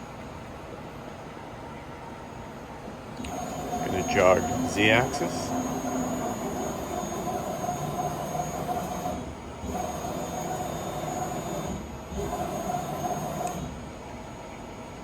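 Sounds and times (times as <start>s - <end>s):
lathe carriage motor whine: 3.1s - 15.0s.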